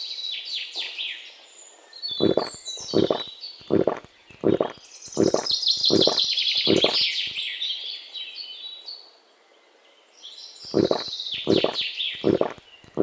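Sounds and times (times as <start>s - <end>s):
birds chirping and twittering: 0.0s - 13.0s.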